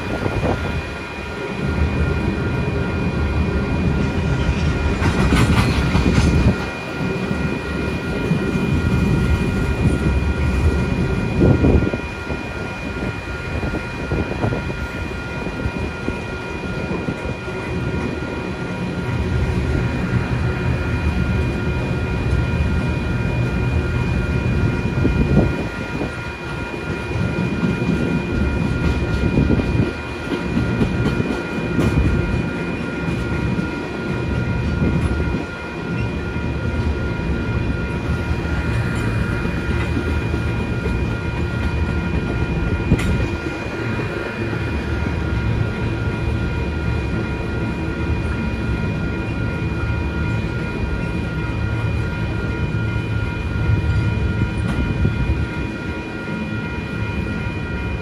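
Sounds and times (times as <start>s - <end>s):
crossing warning bell ringing: 0.0s - 58.0s
train wheels rumbling on rails: 0.0s - 58.0s.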